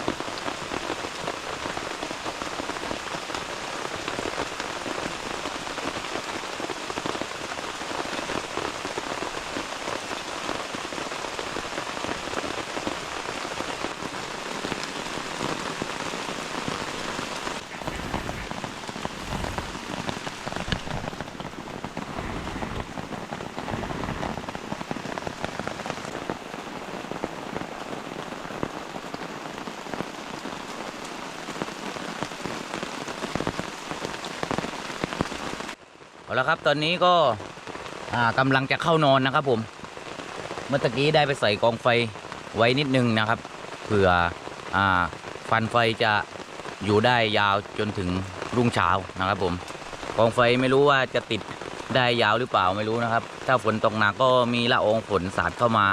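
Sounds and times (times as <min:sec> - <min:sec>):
heavy rain pouring: 0:00.0 - 0:55.9
low rumble: 0:17.6 - 0:23.0.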